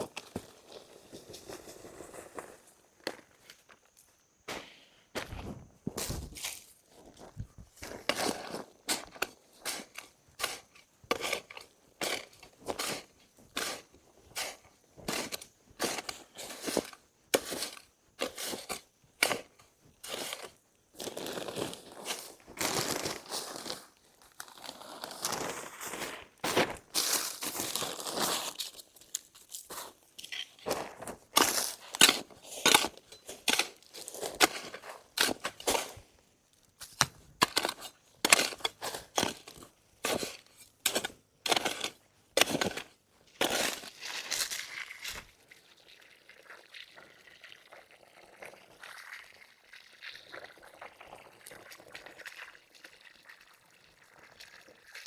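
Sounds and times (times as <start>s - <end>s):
dry leaves and twigs crunching: 26.6s - 36.0s.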